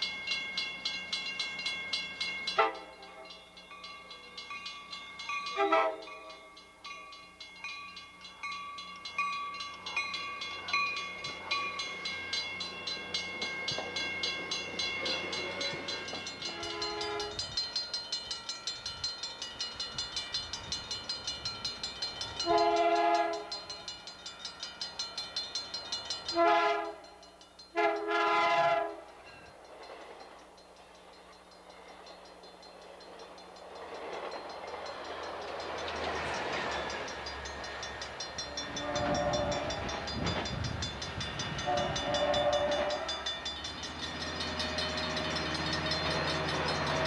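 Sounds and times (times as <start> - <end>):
crossing bell ringing: 0.0 - 47.0
train air horn blasts: 2.6 - 3.3, 5.5 - 6.2, 16.5 - 17.5, 22.4 - 23.7, 26.3 - 27.1, 27.7 - 29.1, 38.5 - 40.0, 41.6 - 43.2.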